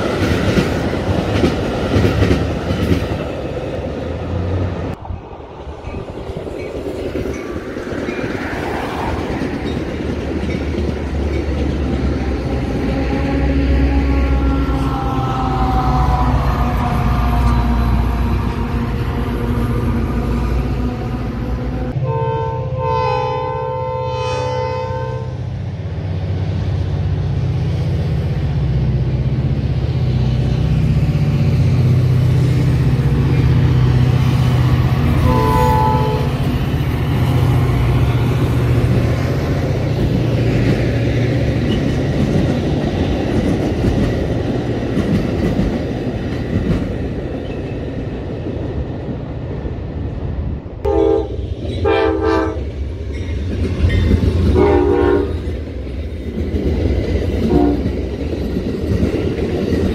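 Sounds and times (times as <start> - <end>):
train horn: 12.5 - 19.0, 20.8 - 25.4, 35.1 - 36.5, 50.8 - 52.7, 54.5 - 55.4, 57.4 - 57.9
diesel locomotive rumble: 25.2 - 59.9.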